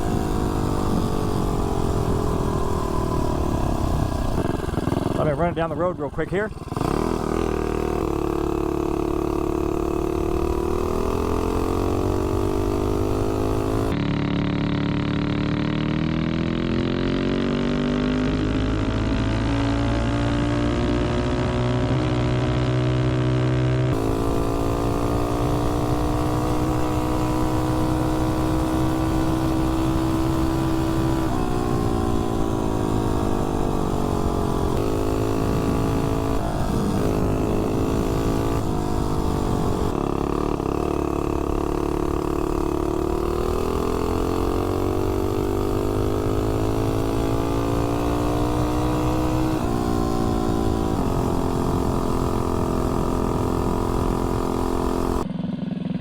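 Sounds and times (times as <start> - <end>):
single-cylinder engine running hard: 0.0 - 56.0.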